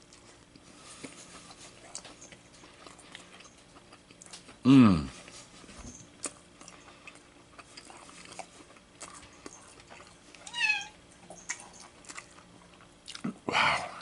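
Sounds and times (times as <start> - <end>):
chewing and eating clicks: 1.8 - 4.6, 6.2 - 10.4, 11.2 - 13.4
cat meowing: 10.4 - 11.0.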